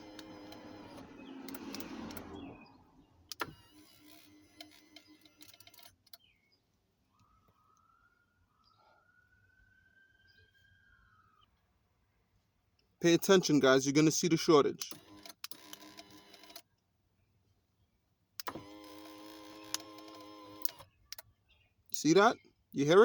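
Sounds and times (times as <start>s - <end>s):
steering column motor whine: 0.0s - 2.7s.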